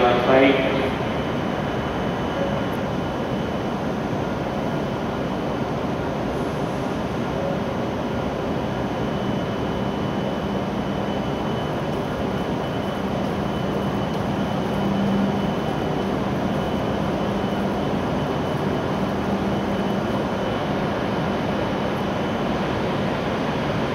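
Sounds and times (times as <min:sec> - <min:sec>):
train equipment humming: 0:00.0 - 0:23.9.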